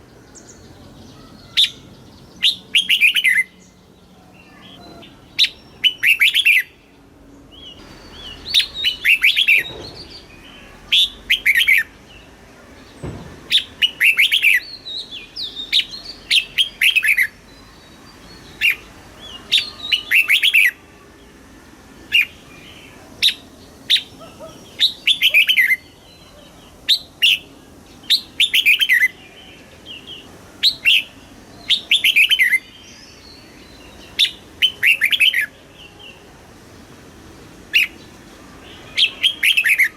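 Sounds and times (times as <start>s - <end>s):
bird singing bubbling phrases: 22.1s - 36.2s, 38.7s - 39.9s.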